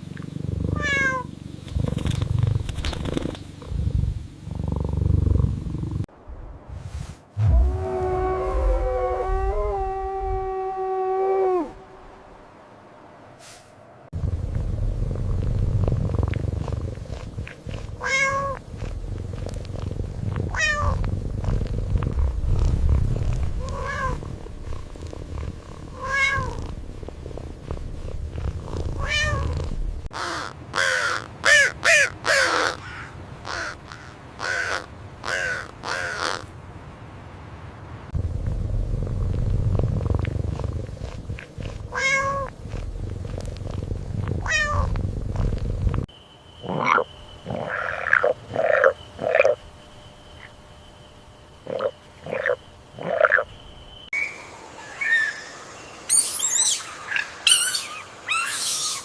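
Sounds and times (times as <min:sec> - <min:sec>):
cat purring: 0:00.0 - 0:06.1, 0:14.1 - 0:30.1, 0:38.1 - 0:46.1
cat meowing: 0:00.8 - 0:01.3, 0:18.0 - 0:18.6, 0:20.5 - 0:21.0, 0:23.6 - 0:24.2, 0:26.0 - 0:26.6, 0:29.0 - 0:29.6, 0:41.9 - 0:42.5, 0:44.4 - 0:44.9.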